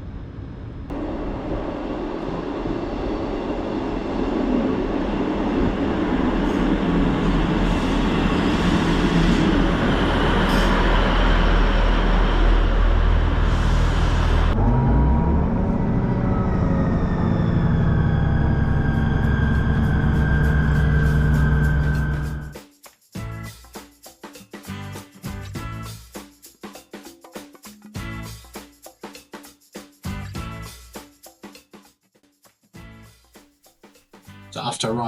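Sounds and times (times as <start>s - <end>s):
rising whine: 0.0s - 22.6s
train rumbling on rails: 0.0s - 22.6s.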